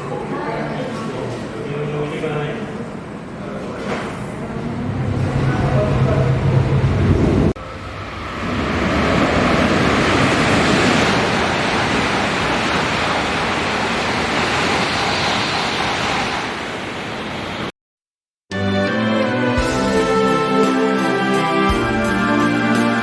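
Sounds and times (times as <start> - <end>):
train rushing at speed: 2.2 - 17.7.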